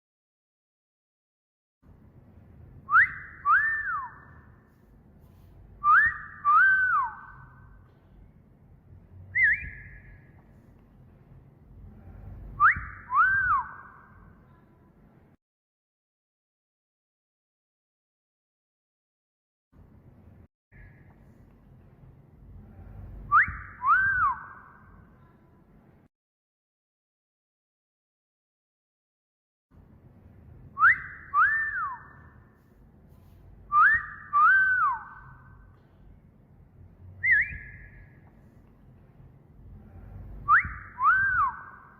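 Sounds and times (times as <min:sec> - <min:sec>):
short wavering rising whistle: 0:02.9 - 0:04.5, 0:05.8 - 0:07.8, 0:09.3 - 0:10.3, 0:12.2 - 0:14.0, 0:22.9 - 0:24.6, 0:30.8 - 0:32.4, 0:33.7 - 0:35.6, 0:37.2 - 0:38.2, 0:40.1 - 0:41.9
wolf whistle: 0:02.9 - 0:04.5, 0:05.8 - 0:07.7, 0:09.3 - 0:10.3, 0:12.6 - 0:14.2, 0:23.2 - 0:24.9, 0:30.8 - 0:32.4, 0:33.7 - 0:35.6, 0:37.2 - 0:38.2, 0:40.4 - 0:41.9.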